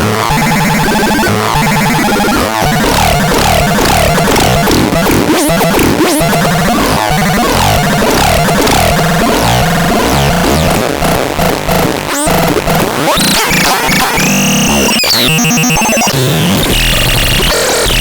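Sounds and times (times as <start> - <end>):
chaotic synthesizer texture: 0.0 - 17.4
falling synth pitch sweeps: 0.4 - 10.8
pulsing low synth part: 0.8 - 10.8.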